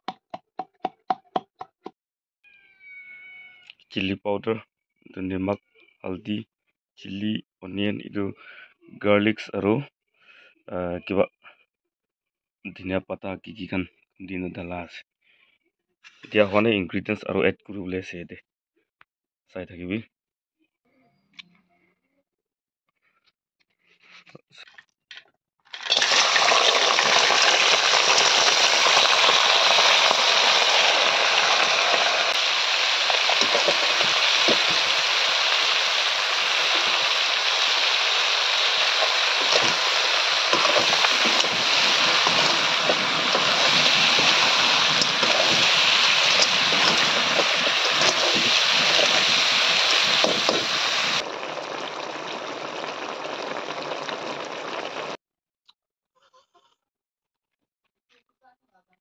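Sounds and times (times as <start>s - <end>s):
food sizzling in wok: 25.8s - 55.2s
sauce bubbling: 25.8s - 55.2s.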